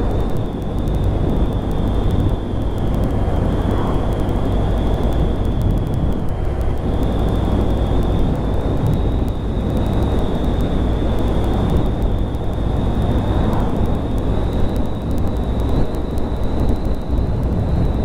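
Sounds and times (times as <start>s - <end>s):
motorcycle engine running: 0.0s - 18.0s
thin high whine: 0.0s - 18.0s
wind rush over microphone: 0.0s - 18.0s.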